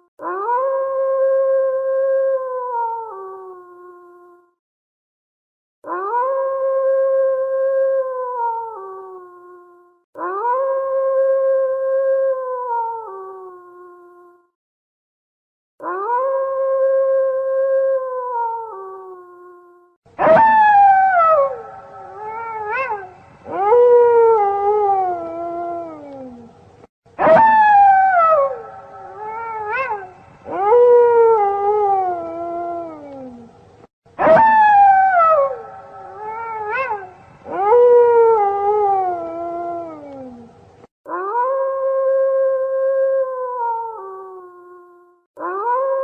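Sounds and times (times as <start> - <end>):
wolves yelping: 20.2 - 24.9, 27.2 - 31.6, 34.2 - 38.4
wolves howling: 20.2 - 26.5, 27.2 - 33.5, 34.2 - 40.5.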